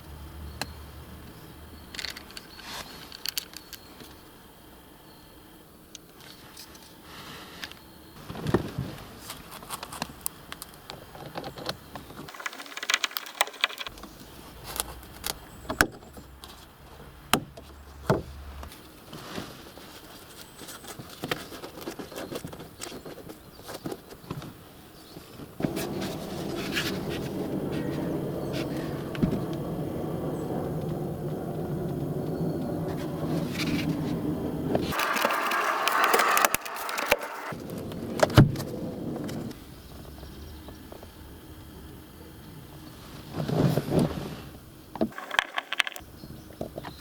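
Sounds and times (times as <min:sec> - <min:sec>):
steady loud noise: 0:25.6 - 0:39.5.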